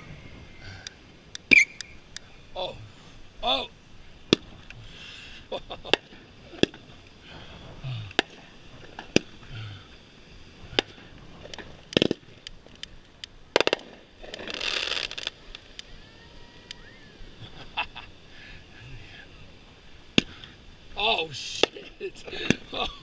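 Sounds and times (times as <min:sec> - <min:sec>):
fireworks crackling: 0:00.0 - 0:23.0
fireworks banging: 0:03.6 - 0:09.5, 0:10.5 - 0:15.9, 0:21.4 - 0:23.0.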